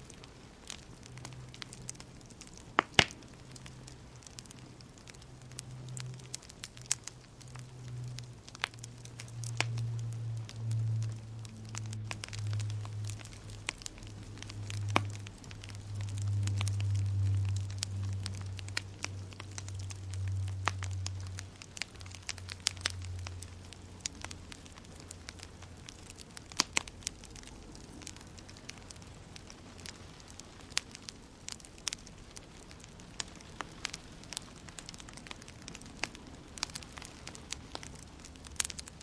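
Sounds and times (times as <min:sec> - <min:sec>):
low rumble of fire: 0:00.0 - 0:39.0
sharp pops of burning wood: 0:00.0 - 0:39.0
wood fire crackling: 0:00.0 - 0:39.0.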